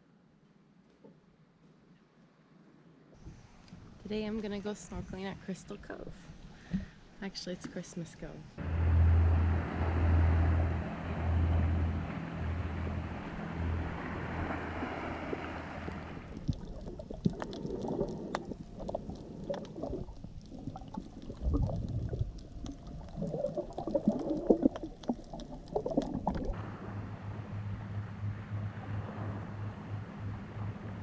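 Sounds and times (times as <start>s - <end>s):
wind: 0.0s - 31.0s
water noise: 8.6s - 31.0s
underwater bubbling gurgles: 14.7s - 31.0s
muffled underwater crackling clicks: 16.3s - 26.6s.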